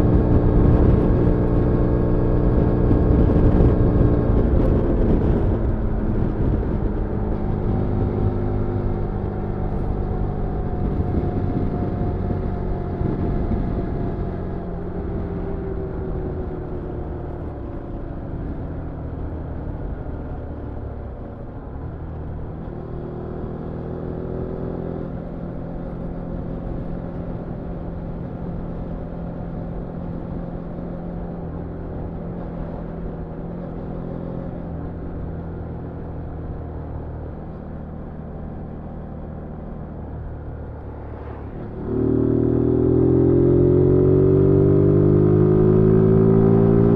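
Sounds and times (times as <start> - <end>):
motorcycle engine revving: 38.5 - 46.9.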